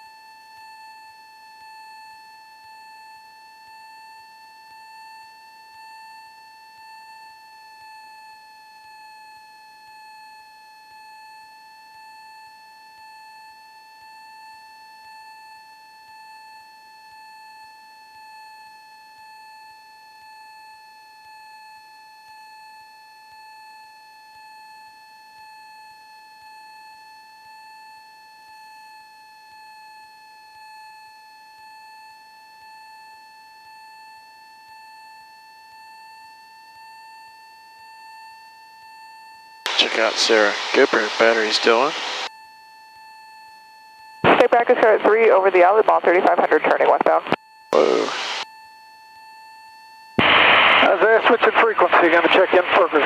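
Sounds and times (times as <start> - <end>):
high-pitched electrical whine: 39.7 - 42.3, 47.8 - 48.4.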